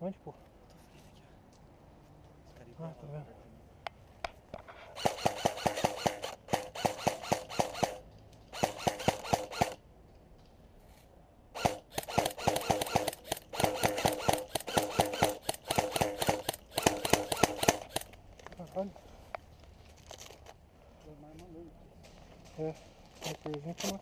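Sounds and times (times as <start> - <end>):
airsoft gun firing bursts: 5.0 - 9.8, 11.6 - 18.2.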